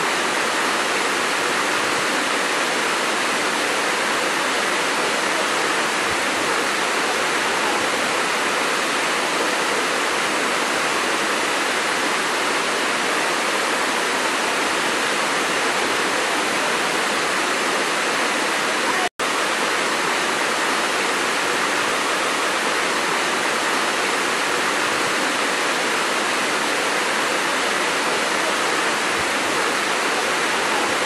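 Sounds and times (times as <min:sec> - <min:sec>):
waterfall splashing: 0:00.0 - 0:31.0.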